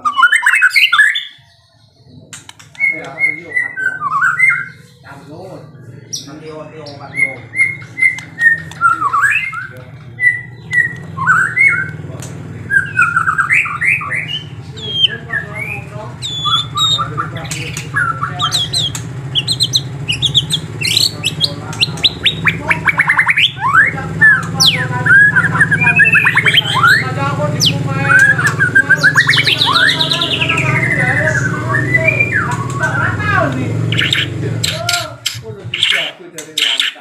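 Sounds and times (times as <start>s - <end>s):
songbirds chirping: 0.0s - 37.0s.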